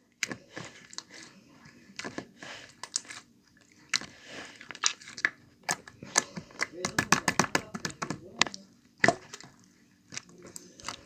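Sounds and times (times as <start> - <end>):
slime clicking and squishing: 3.9 - 11.0.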